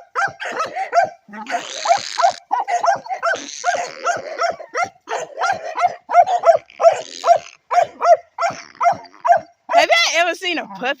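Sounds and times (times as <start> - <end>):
puppy barking rapidly: 0.0 - 10.3.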